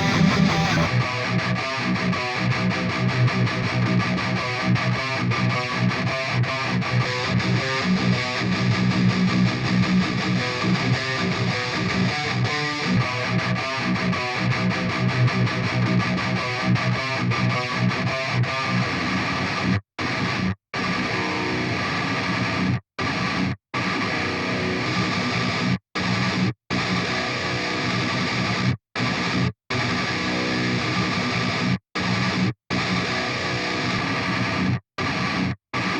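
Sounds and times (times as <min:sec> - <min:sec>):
distorted electric guitar riff: 0:00.0 - 0:35.9.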